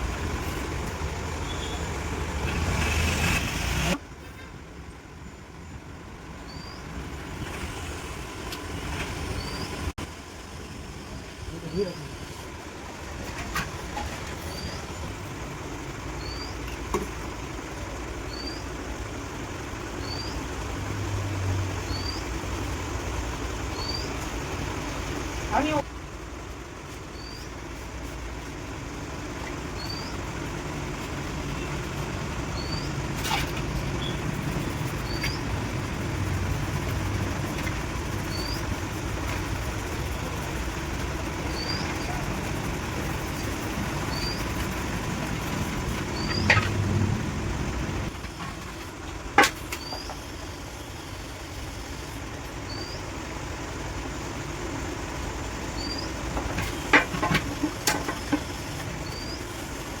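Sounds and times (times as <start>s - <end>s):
car engine idling: 0.0s - 60.0s
faint high chirp: 1.4s - 1.9s, 6.5s - 6.9s, 18.3s - 18.7s, 21.8s - 22.3s, 23.7s - 24.2s, 27.1s - 27.5s, 52.7s - 53.1s, 55.8s - 56.2s.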